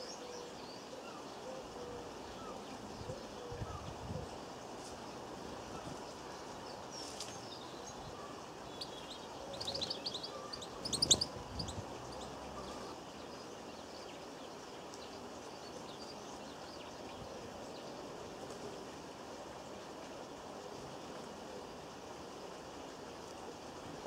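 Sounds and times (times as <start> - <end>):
outdoor background hiss: 0.0 - 24.0
small birds chirping: 5.8 - 16.7.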